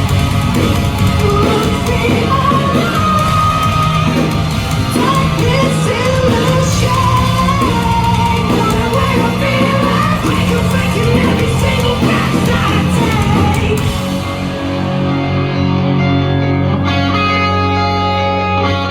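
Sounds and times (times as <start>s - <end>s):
live rock band playing: 0.0s - 18.9s
person singing: 0.6s - 14.2s.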